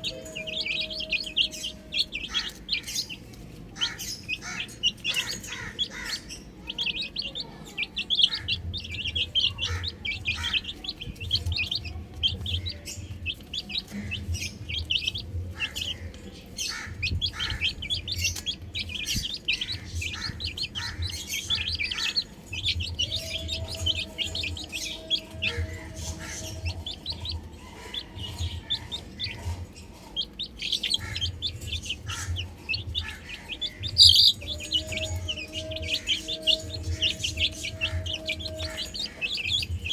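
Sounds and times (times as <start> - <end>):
baby chicks chirping: 0.0 - 39.9.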